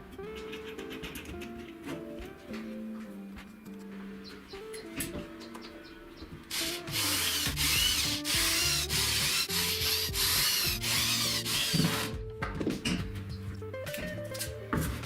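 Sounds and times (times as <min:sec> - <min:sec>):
wood being sanded: 0:06.5 - 0:12.1.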